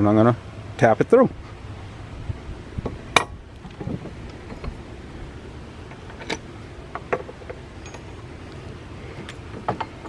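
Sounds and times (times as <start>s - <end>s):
low steady hum: 0.0s - 10.0s
metal clicks and knocks: 5.9s - 8.2s, 9.1s - 10.0s.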